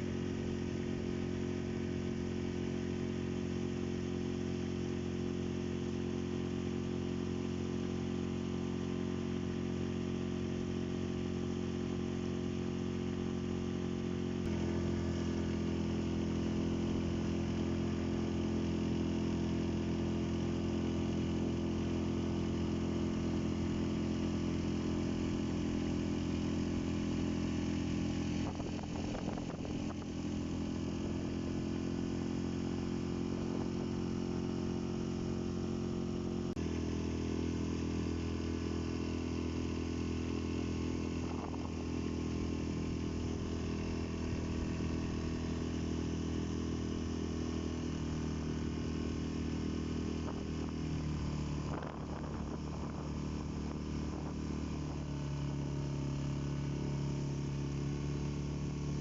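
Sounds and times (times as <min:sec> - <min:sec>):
engine running steadily: 0:00.0 - 0:59.0
rough engine disturbance: 0:50.2 - 0:55.1.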